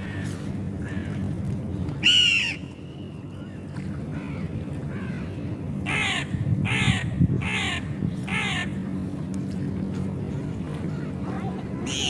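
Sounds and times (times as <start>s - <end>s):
seagull calling: 2.0s - 8.8s, 11.8s - 12.0s.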